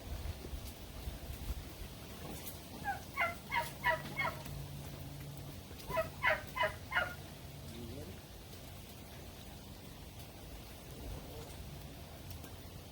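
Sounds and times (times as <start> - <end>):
poultry calling: 2.7 - 4.6, 5.8 - 7.3.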